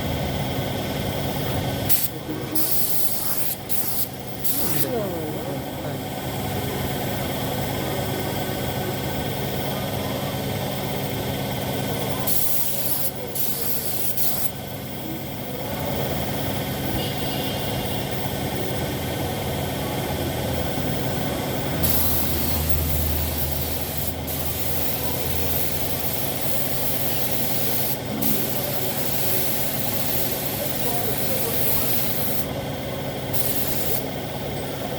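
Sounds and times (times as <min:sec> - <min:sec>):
steady machine hum: 0:00.0 - 0:34.9
spray gun hissing: 0:01.9 - 0:05.0, 0:21.8 - 0:32.5, 0:33.3 - 0:34.0.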